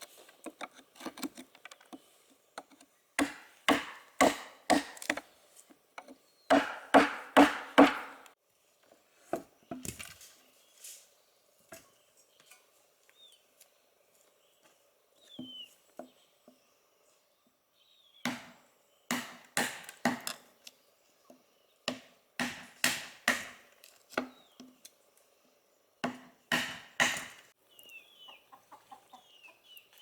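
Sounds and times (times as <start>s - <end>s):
wood chopping with blade: 2.7s - 5.3s, 6.0s - 8.4s, 18.2s - 20.5s, 21.9s - 24.8s, 26.0s - 27.5s.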